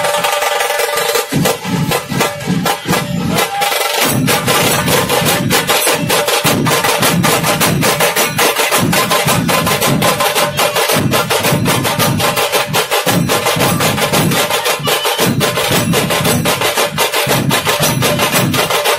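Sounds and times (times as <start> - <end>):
procession band drums: 0.0 - 18.9.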